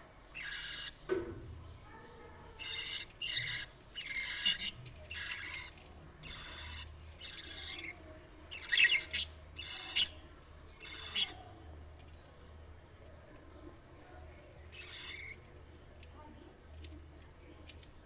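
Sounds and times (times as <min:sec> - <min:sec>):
chicks squawking: 0:02.5 - 0:11.6.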